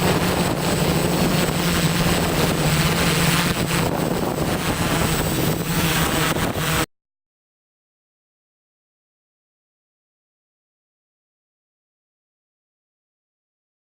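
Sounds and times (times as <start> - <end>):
drone propellers humming: 0.0 - 6.9
wind buffeting microphone: 0.0 - 6.9.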